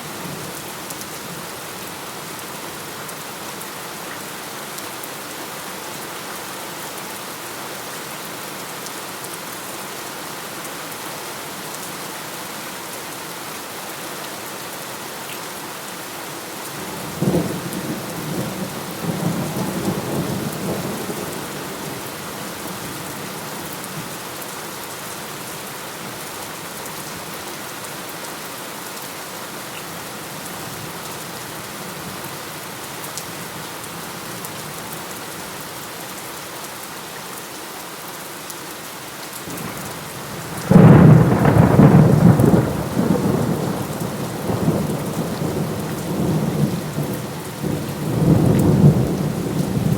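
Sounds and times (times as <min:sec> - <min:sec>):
steady rainfall: 0:00.0 - 0:49.9
thunder clap rumbling: 0:40.4 - 0:47.1.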